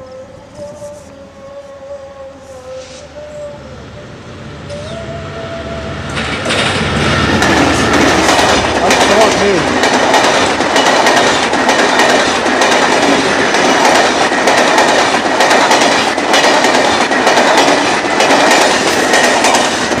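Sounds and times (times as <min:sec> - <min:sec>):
train rumble: 0:00.0 - 0:20.0
train wheels clattering over joints: 0:06.1 - 0:20.0.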